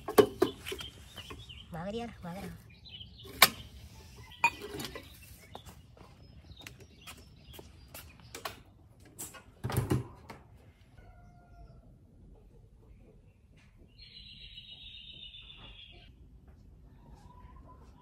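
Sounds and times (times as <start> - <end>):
footsteps on concrete: 5.4 - 8.3.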